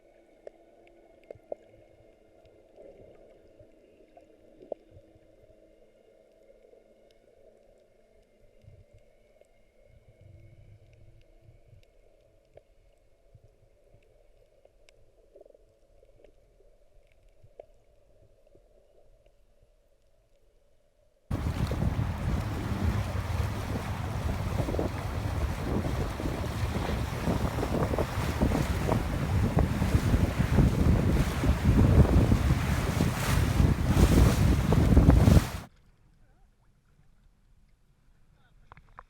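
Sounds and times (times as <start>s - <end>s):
muffled underwater sound: 21.3s - 35.7s.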